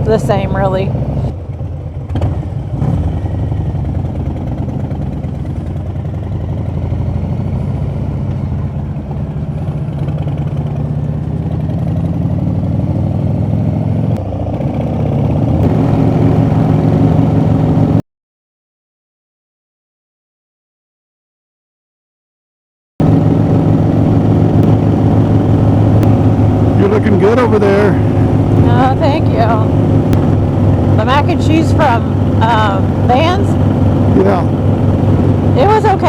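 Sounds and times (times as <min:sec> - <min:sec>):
motorcycle engine running: 0:00.0 - 0:18.0, 0:23.0 - 0:36.0.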